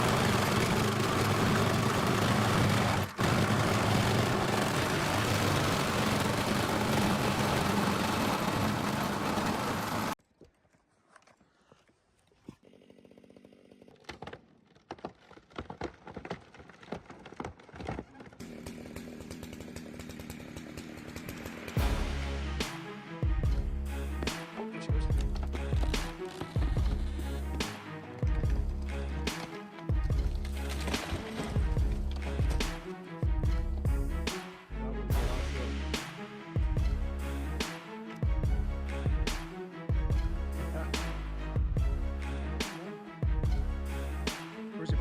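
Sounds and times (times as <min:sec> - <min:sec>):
motor running loud: 0:00.0 - 0:10.2.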